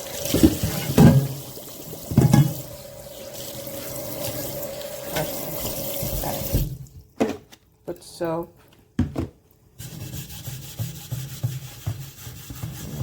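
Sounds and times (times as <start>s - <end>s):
tap running into sink: 2.0s - 2.7s, 4.2s - 7.4s.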